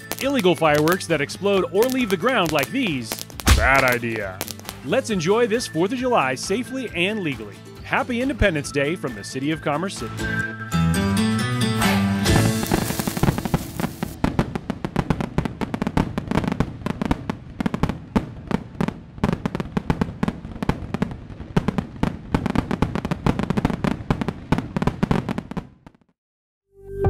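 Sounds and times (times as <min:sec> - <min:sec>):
fireworks crackling and popping: 0:00.0 - 0:06.1, 0:12.3 - 0:26.1.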